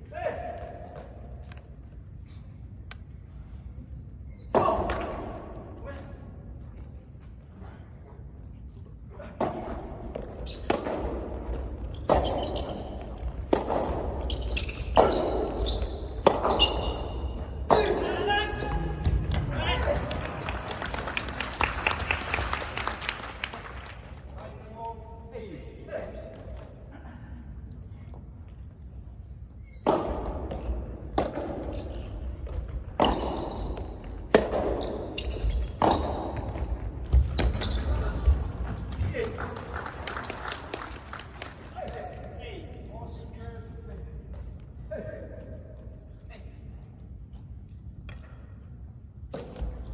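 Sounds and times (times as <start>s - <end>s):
shoe squeaks on court floor: 3.8s - 6.4s, 8.6s - 9.1s, 10.4s - 10.8s, 11.9s - 19.6s, 29.1s - 29.9s, 30.5s - 32.3s, 33.0s - 39.0s, 49.5s - 49.9s
rackets hitting tennis ball: 9.3s - 20.4s, 29.7s - 38.3s, 49.3s - 49.8s
tennis ball hit by rackets: 9.4s - 11.2s, 16.1s - 16.9s, 29.8s - 31.6s.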